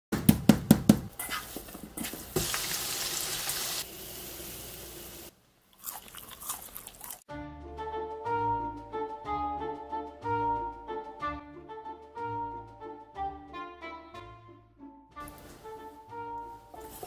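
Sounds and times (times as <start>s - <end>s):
small kitchen noises: 0.1s - 7.3s, 15.2s - 17.0s
frying hiss: 1.2s - 6.2s
light instrumental music: 7.3s - 17.0s.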